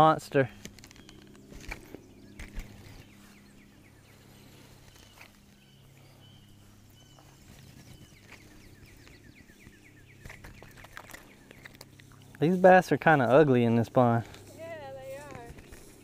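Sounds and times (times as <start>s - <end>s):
faint bird chirping: 0.4s - 12.6s.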